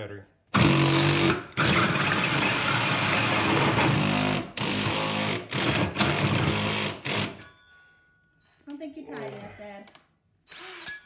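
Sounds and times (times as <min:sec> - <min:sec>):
drill cutting with hole saw: 0:00.6 - 0:07.4, 0:10.5 - 0:11.0.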